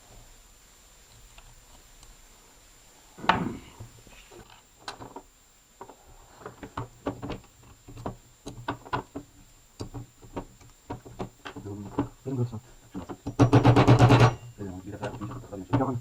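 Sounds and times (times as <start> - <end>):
hard parts clicking and tapping: 12.9 - 16.0
loud knock: 13.3 - 14.4.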